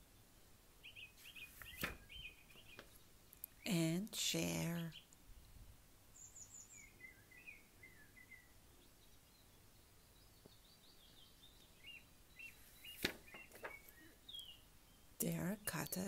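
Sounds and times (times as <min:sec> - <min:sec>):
faint bird chirps: 0:00.1 - 0:03.8, 0:04.6 - 0:16.0
book pages rustling: 0:01.2 - 0:03.0, 0:12.5 - 0:14.0.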